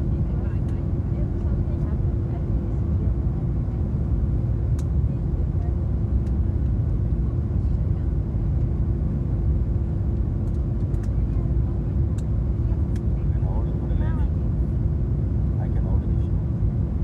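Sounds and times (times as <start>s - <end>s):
airliner engine and airflow drone: 0.0s - 17.0s
constant hum: 0.0s - 17.0s.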